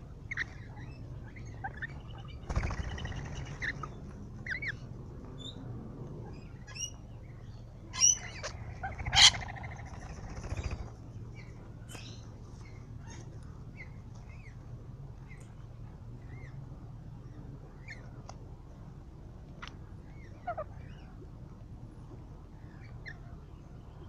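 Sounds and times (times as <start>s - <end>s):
harsh rattling bird calls: 0.3s - 4.8s, 6.3s - 14.6s.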